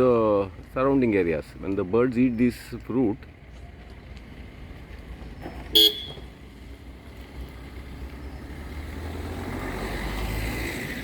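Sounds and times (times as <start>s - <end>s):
vehicle rumble approaching: 0.0s - 11.0s.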